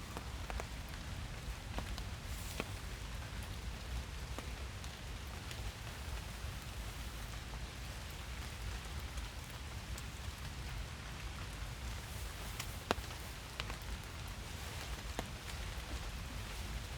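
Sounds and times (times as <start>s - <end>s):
raindrops ticking close by: 0.0s - 16.9s
steady rain in forest: 0.0s - 16.9s.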